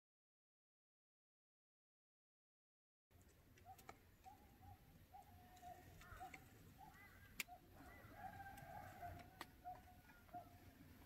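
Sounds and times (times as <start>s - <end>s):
faint bird calls: 3.6s - 11.0s.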